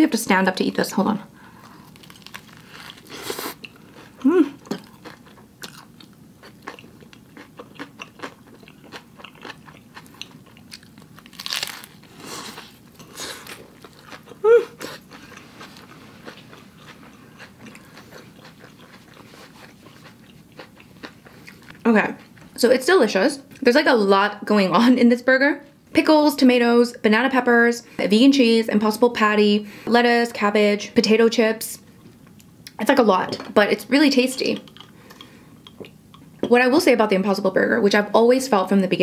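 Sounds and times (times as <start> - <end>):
crunchy chewing with mouth clicks: 1.6 - 22.6
person humming: 4.2 - 4.7, 14.4 - 14.8.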